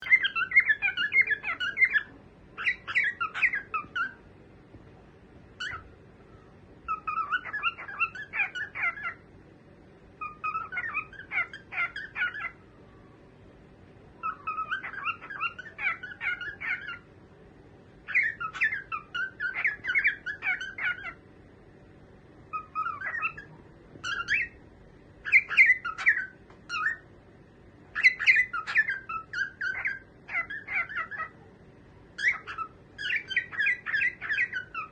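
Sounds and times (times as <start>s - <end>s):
cockatiel chirping: 0.0s - 4.2s, 5.6s - 9.2s, 10.2s - 12.6s, 14.2s - 17.1s, 18.0s - 21.2s, 22.5s - 24.6s, 25.2s - 27.0s, 27.9s - 31.4s, 32.2s - 34.9s.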